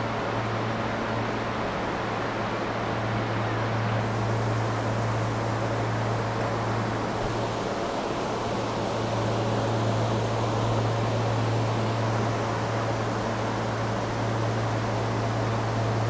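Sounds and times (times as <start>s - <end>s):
train car low hum: 0.0s - 16.0s.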